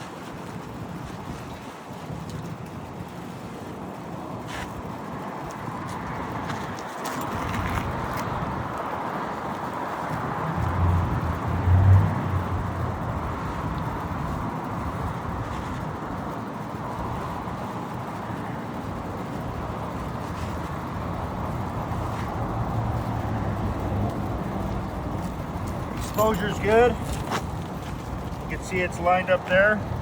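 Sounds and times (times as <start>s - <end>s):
road traffic noise: 2.5s - 30.0s
low vehicle rumble: 10.0s - 30.0s.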